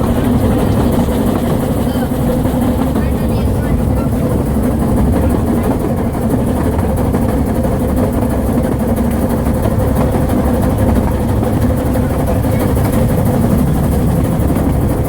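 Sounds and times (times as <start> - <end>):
train rumbling along the line: 0.0 - 15.0.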